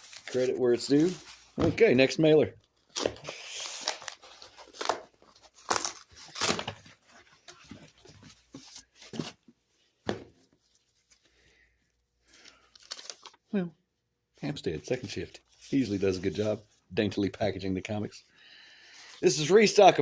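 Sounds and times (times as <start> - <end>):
paper mailer ripping and crinkling: 2.9 - 7.0.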